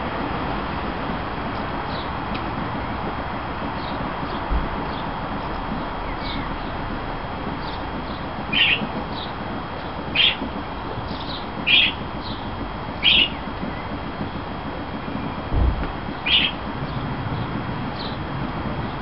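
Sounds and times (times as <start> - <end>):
low thump: 15.5 - 16.2
bird short sharp calls: 16.3 - 16.6.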